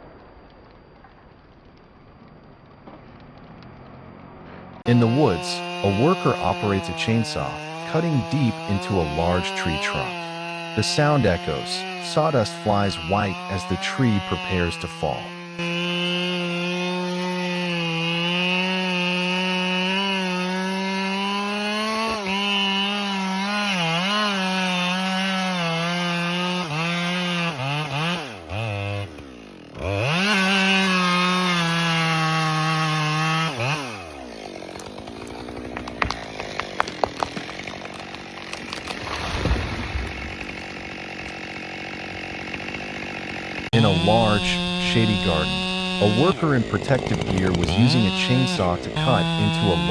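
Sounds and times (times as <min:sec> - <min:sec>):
wood cracking and snapping: 0:00.0 - 0:04.4, 0:18.3 - 0:43.7
chainsaw cutting wood: 0:02.8 - 0:49.9.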